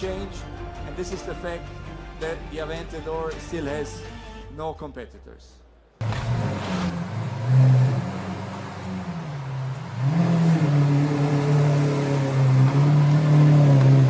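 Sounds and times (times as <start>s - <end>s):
sports car engine revving: 6.0s - 14.0s.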